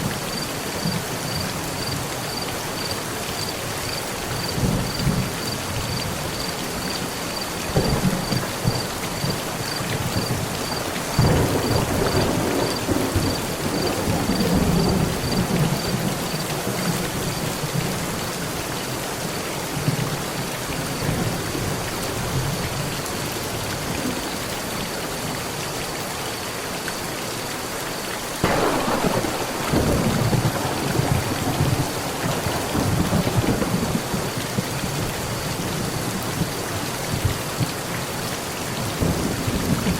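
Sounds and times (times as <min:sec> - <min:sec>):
heavy rain on a metal roof: 0:00.0 - 0:39.9
rolling thunder: 0:07.7 - 0:16.4, 0:28.4 - 0:35.5.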